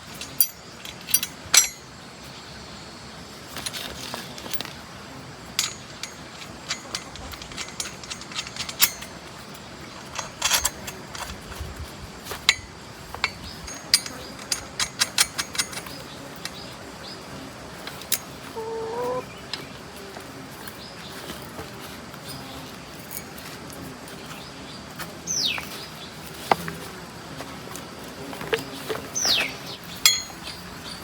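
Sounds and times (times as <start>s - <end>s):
hand tools clinking on metal: 0.1s - 1.9s, 3.6s - 4.8s, 5.6s - 11.6s, 12.3s - 16.6s, 28.4s - 31.0s.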